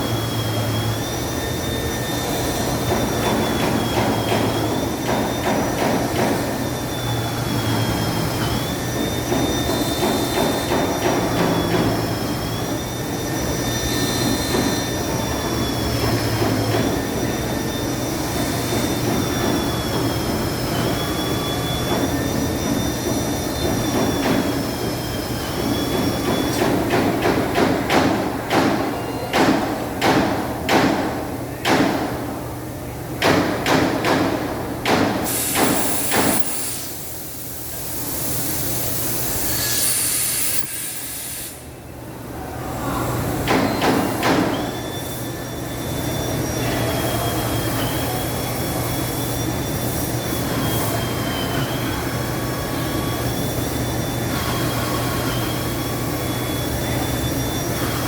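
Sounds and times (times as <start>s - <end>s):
machine whine: 0.0s - 26.7s, 44.4s - 58.0s
pneumatic nail gun shots: 34.9s - 37.0s, 39.3s - 41.6s.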